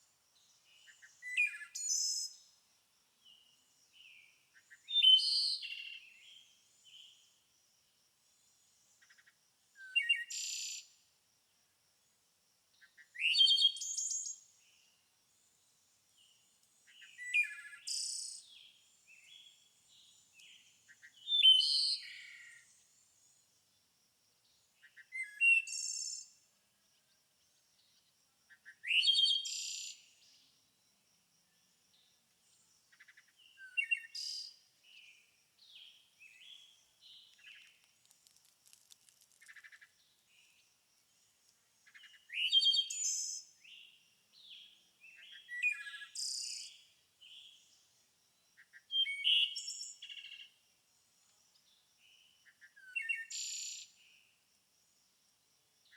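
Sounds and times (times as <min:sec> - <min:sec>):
songbird singing: 0:00.1 - 0:07.4, 0:08.3 - 0:11.0, 0:12.0 - 0:54.4.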